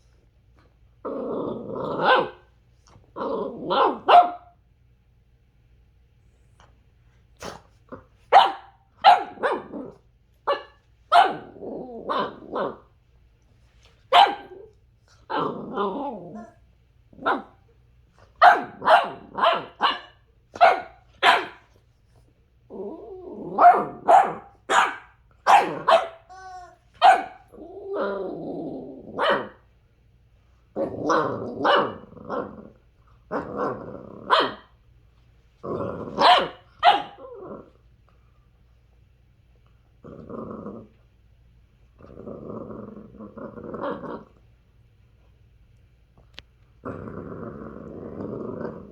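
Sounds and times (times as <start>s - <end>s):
puppy growling: 1.0s - 4.3s, 9.2s - 10.1s, 11.2s - 12.9s, 14.4s - 17.6s, 22.6s - 24.4s, 27.4s - 29.6s, 30.8s - 34.6s, 35.6s - 37.9s, 40.0s - 41.0s, 41.9s - 44.4s, 46.3s - 48.9s
puppy barking: 2.0s - 2.4s, 3.7s - 4.6s, 8.3s - 9.7s, 10.5s - 12.8s, 14.1s - 14.6s, 17.2s - 17.6s, 18.4s - 21.7s, 23.6s - 27.5s, 29.2s - 29.6s, 34.3s - 34.7s, 36.2s - 37.2s.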